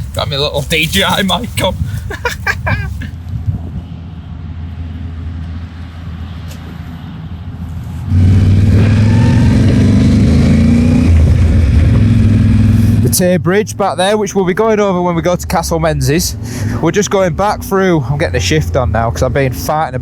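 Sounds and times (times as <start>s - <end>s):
motorcycle engine running: 8.1s - 13.9s.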